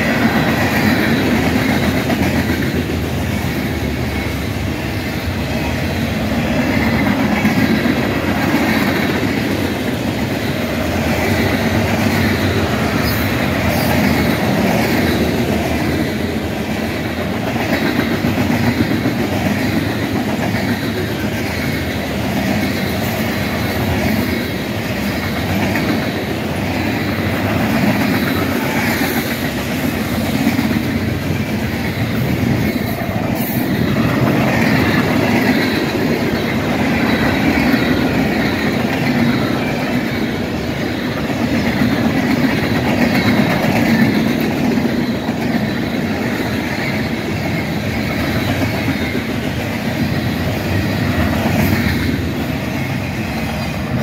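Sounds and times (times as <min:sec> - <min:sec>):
steel wheels rolling over rails: 0:00.0 - 0:54.0.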